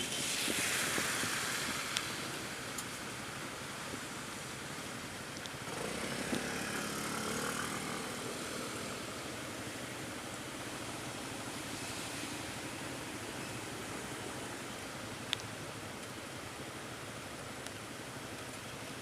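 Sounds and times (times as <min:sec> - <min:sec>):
rain hissing: 0:00.0 - 0:19.0
traffic on wet road: 0:00.0 - 0:19.0
vehicle engine passing: 0:05.7 - 0:09.0.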